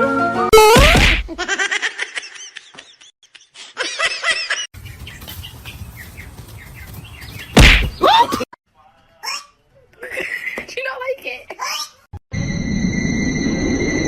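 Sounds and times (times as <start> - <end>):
high bird-like chirps: 4.8 - 8.1.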